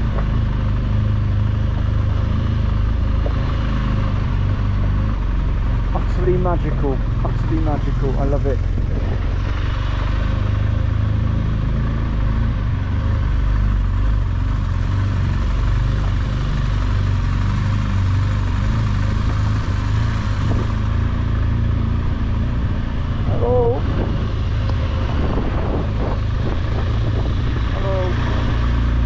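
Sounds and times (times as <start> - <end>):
motorcycle engine running: 0.0 - 29.0
road noise: 0.0 - 29.0
wind noise: 7.2 - 10.7, 18.8 - 21.2, 21.8 - 29.0.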